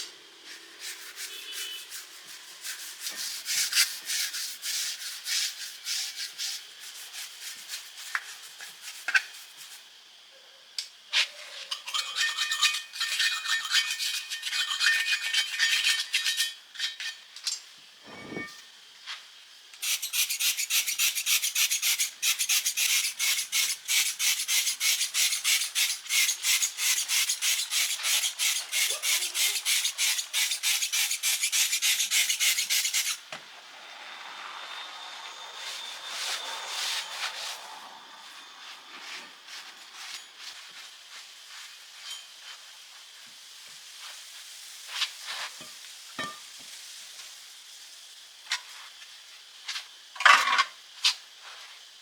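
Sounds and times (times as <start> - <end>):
hand tool scraping metal: 11.2 - 17.2, 19.8 - 33.2.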